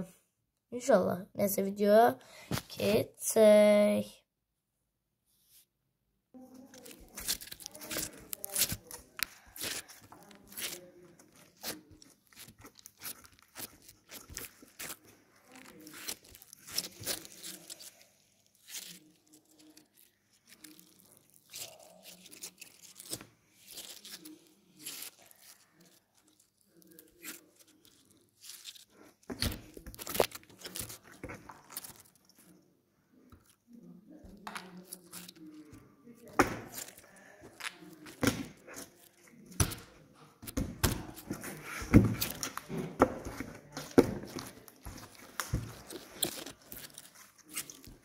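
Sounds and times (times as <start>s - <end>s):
slime squeezed wet crackles: 6.7s - 32.3s.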